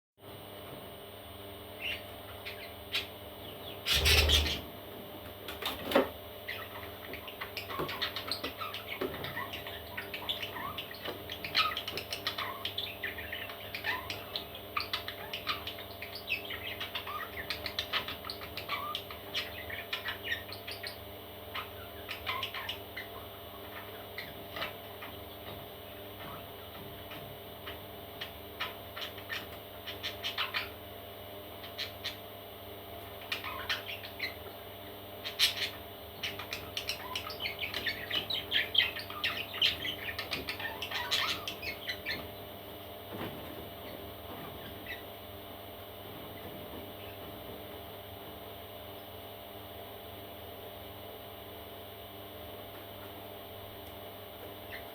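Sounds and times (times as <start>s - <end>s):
parrot chicks chirping: 1.7s - 4.7s, 5.5s - 45.5s, 54.4s - 54.9s.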